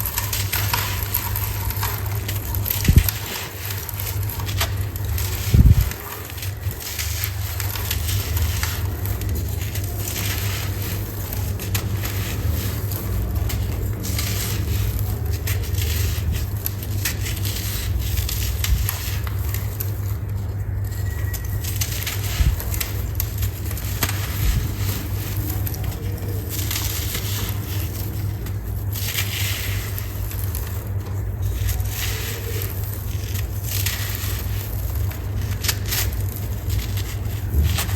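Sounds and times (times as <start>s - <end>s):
sand crunching and crumbling: 0.0s - 37.9s.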